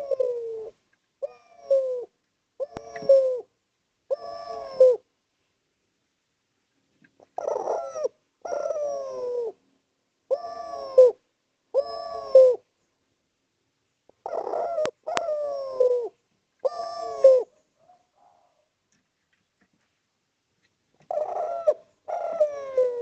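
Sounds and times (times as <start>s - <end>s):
dove cooing: 0.0s - 5.1s, 7.2s - 9.7s, 10.3s - 12.7s, 14.1s - 18.7s, 21.0s - 23.0s.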